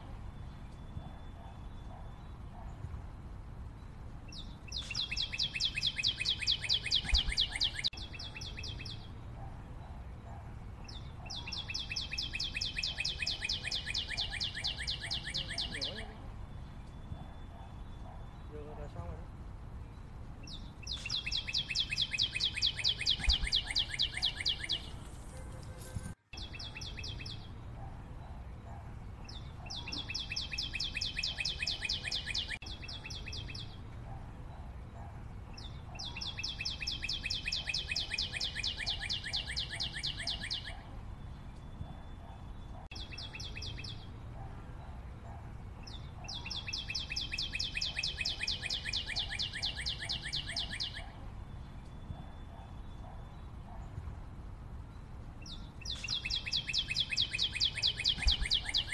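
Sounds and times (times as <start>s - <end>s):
bird trilling: 4.7s - 8.9s, 11.2s - 16.2s, 20.5s - 25.0s, 29.6s - 33.7s, 35.9s - 40.8s, 55.5s - 58.9s.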